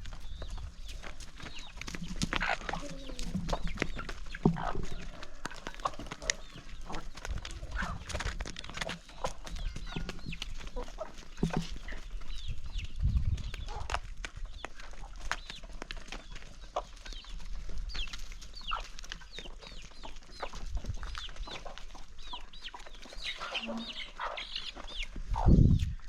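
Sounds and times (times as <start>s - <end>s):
chickens clucking: 0.0s - 26.0s
chickens pecking feed: 0.0s - 26.0s.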